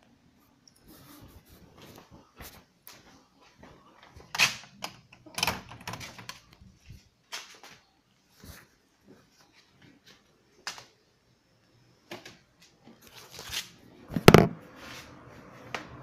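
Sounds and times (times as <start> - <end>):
sharp knocks: 14.2 - 14.6.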